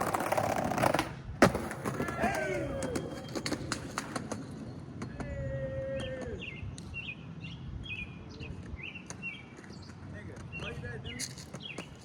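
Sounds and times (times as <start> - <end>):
bird chirping: 6.0 - 12.0.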